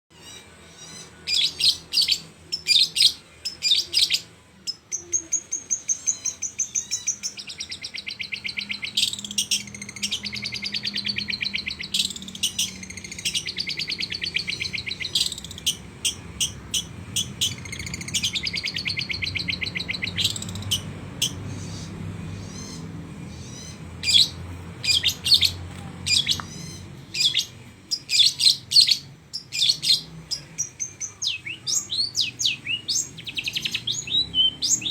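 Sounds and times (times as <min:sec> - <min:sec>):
bird singing with chattering runs: 0:05.6 - 0:30.0.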